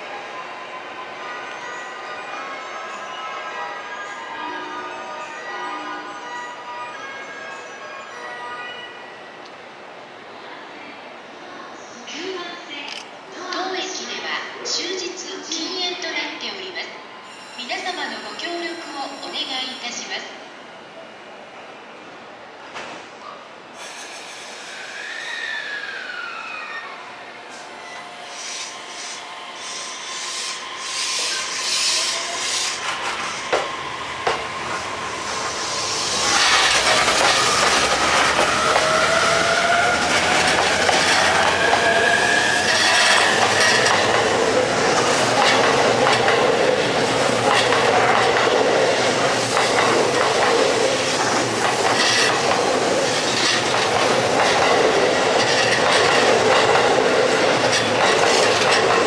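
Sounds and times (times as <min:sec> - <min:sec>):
train wheel noise: 0:27.5 - 0:59.0.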